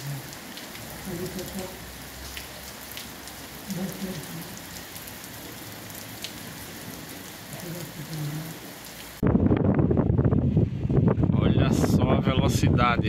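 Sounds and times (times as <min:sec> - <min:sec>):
steady rain: 0:00.0 - 0:09.2.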